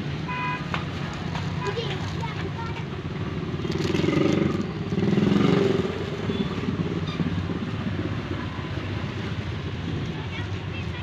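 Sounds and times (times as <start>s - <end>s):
traffic noise: 0.0s - 11.0s
vehicle engine passing: 2.9s - 10.0s.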